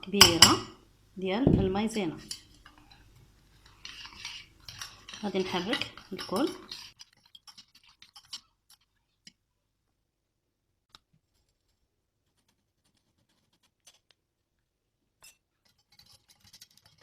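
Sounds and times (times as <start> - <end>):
spoon tapping in a bowl: 0.2 - 0.8.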